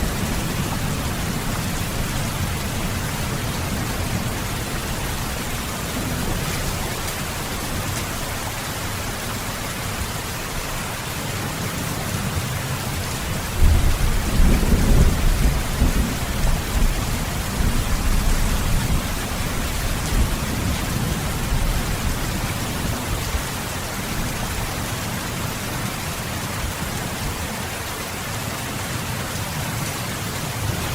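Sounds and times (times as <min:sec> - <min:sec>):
thunder rumbling: 0:00.0 - 0:08.6, 0:13.4 - 0:23.0
heavy rain falling: 0:00.0 - 0:30.9.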